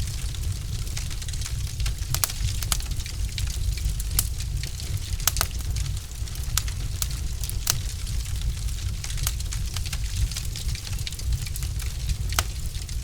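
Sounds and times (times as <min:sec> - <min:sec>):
logs popping in fire: 0:00.0 - 0:13.0
low fire rumble: 0:00.0 - 0:13.0.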